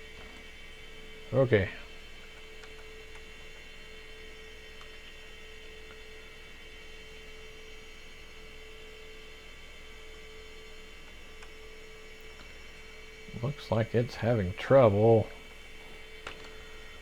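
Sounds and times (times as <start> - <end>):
steady electrical hum: 0.0 - 17.0
high-pitched whine: 12.6 - 17.0.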